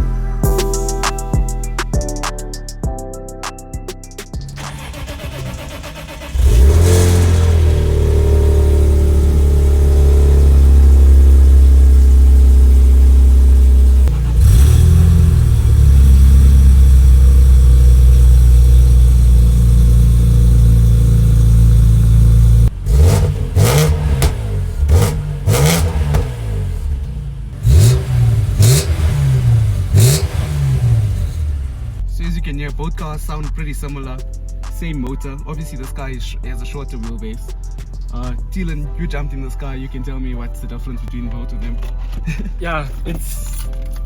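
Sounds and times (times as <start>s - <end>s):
car engine revving: 4.6s - 32.1s.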